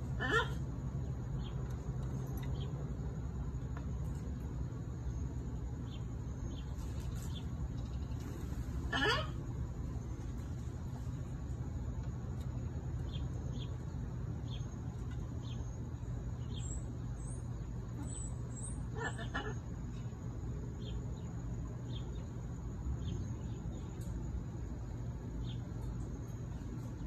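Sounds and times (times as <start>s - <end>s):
low background hum: 0.0s - 27.0s
bird squawk: 0.1s - 0.7s, 8.8s - 9.5s, 17.9s - 19.9s.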